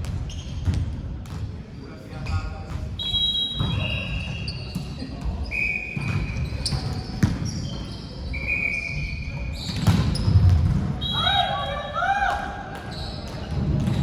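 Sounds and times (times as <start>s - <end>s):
sneakers squeaking: 0.0s - 1.0s, 2.2s - 14.0s
echoing hum of hall: 0.0s - 14.0s
ball bouncing: 12.7s - 14.0s.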